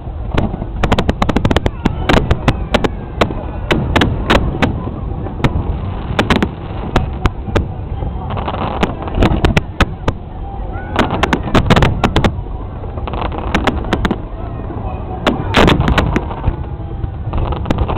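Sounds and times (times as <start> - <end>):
firework shells bursting: 5.4 - 7.7.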